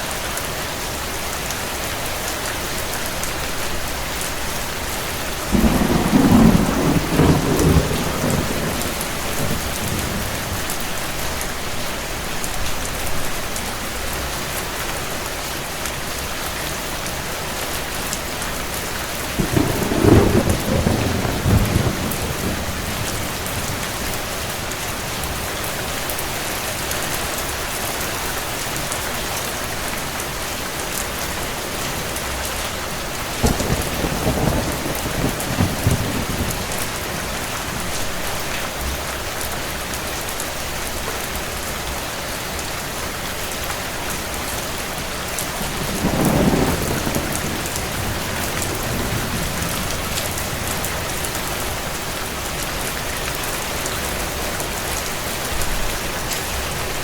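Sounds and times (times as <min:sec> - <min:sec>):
steady rain: 0:00.0 - 0:57.0
distant thunder rumbling: 0:05.5 - 0:10.8, 0:19.2 - 0:25.4, 0:33.4 - 0:38.4, 0:45.5 - 0:52.7.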